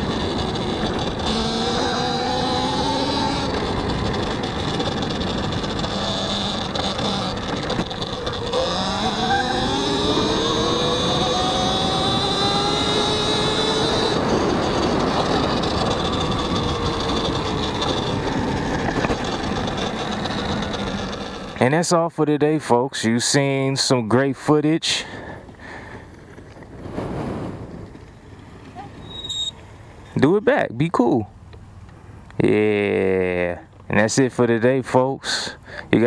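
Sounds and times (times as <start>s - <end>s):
wind noise: 0.0s - 21.6s, 25.3s - 29.9s
electric motor whining: 0.0s - 21.7s
tyre noise: 0.0s - 21.8s, 25.1s - 30.2s.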